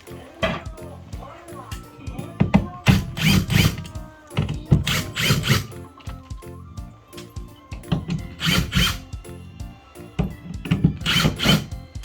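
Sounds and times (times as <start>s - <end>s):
background music: 0.0s - 12.0s
power tool running in bursts: 2.8s - 5.8s, 8.0s - 9.2s, 10.5s - 12.0s.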